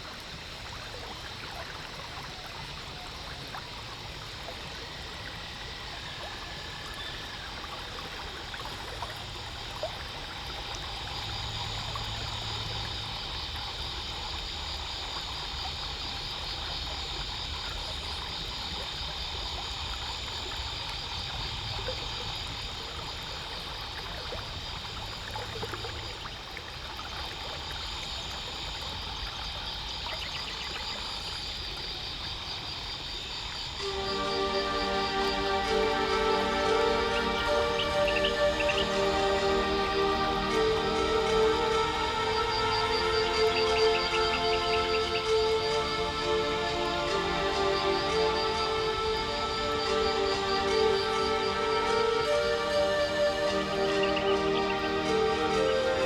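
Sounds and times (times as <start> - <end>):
high pulsing hiss: 33.7 - 56.0
water rushing along boat hull: 33.8 - 56.0.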